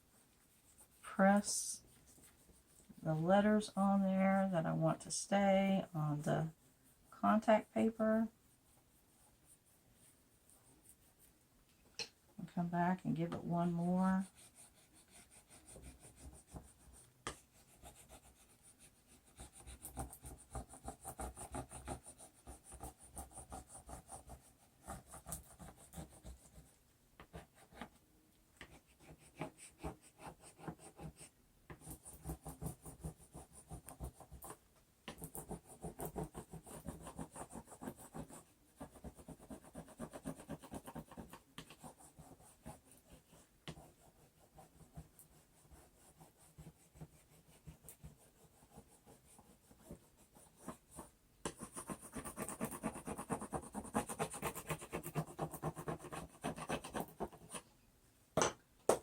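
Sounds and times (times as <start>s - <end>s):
hand tool scratching over paper: 13.6s - 28.0s, 28.6s - 57.6s.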